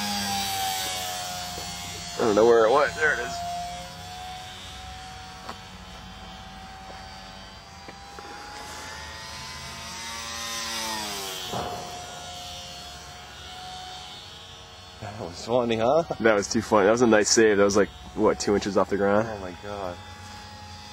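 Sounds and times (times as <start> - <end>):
model airplane motor droning: 0.0 - 20.9.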